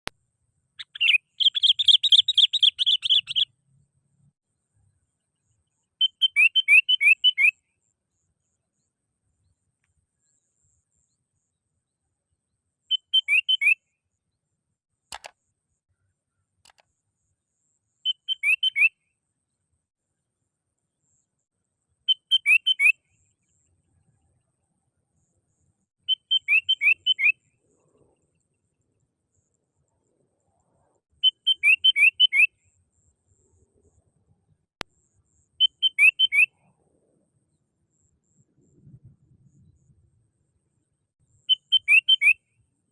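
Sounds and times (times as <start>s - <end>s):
bulbul singing whistled notes: 0.8s - 3.5s, 5.9s - 7.8s, 12.9s - 14.0s, 18.0s - 19.1s, 22.1s - 23.6s, 25.2s - 27.6s, 31.2s - 33.4s, 35.0s - 36.7s, 41.3s - 42.6s
bird chirping: 0.8s - 3.6s, 4.9s - 12.0s, 12.8s - 19.7s, 22.0s - 40.1s, 41.3s - 42.6s
single click: 15.1s - 15.4s, 16.6s - 16.9s
single sharp click: 15.1s - 15.4s.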